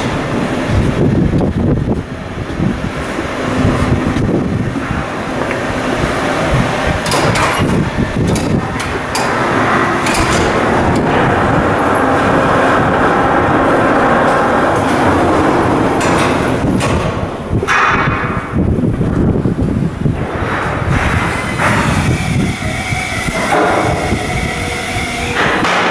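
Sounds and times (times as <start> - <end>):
construction noise: 0.0 - 25.9
sharp metallic knocks: 7.0 - 11.1.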